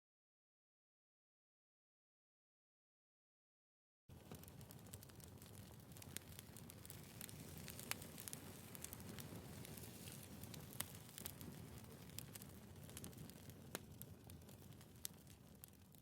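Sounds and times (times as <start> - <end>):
wood fire crackling: 4.1 - 16.0.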